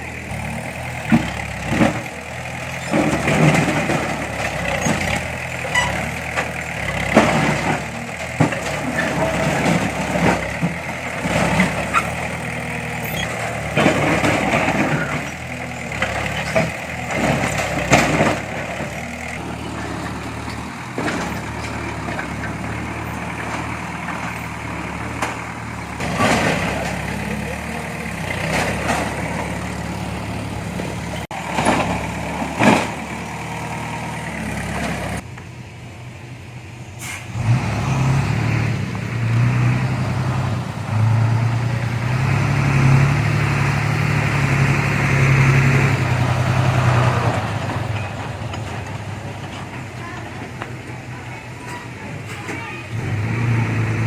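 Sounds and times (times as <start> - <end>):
heavy machinery diesel engine: 0.0 - 54.0
metallic clanks and knocks: 13.0 - 29.9.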